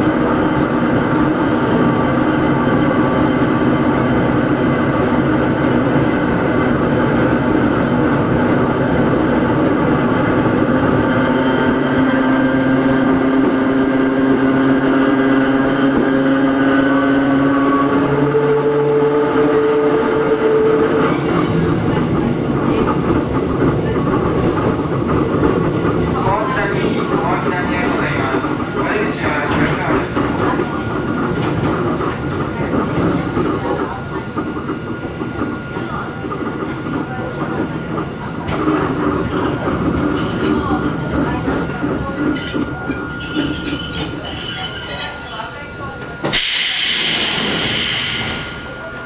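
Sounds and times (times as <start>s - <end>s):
train rumbling and clattering on rails: 0.0s - 49.0s
wheel flange squeal: 20.2s - 21.4s, 31.3s - 32.7s, 38.7s - 45.8s.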